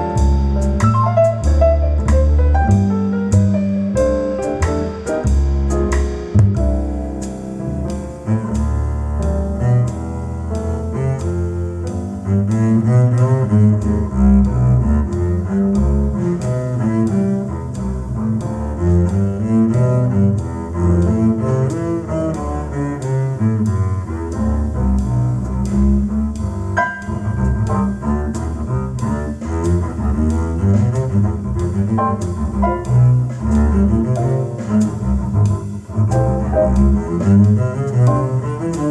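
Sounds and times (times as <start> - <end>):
low string instrument music: 0.0 - 38.9.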